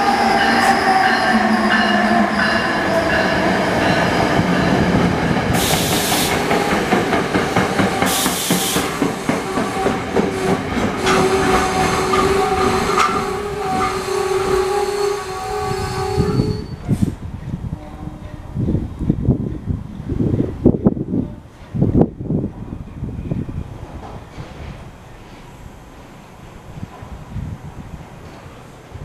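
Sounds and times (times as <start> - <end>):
train brakes squealing: 0.0 - 4.8, 5.5 - 6.9, 7.8 - 17.2
train wheels clattering over rail: 0.1 - 15.1
air hiss: 5.6 - 6.6, 8.0 - 9.1.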